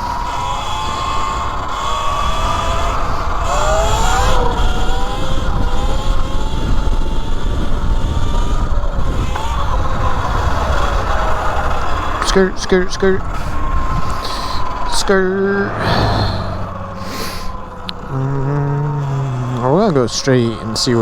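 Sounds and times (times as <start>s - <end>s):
electric motorbike motor whining: 0.0s - 21.0s
low rush of noise: 15.3s - 18.7s.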